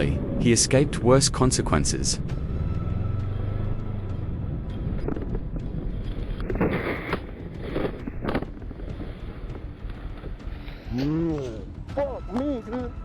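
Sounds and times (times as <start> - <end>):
motorcycle engine running: 0.0 - 11.0
wind noise on microphone: 2.4 - 11.0.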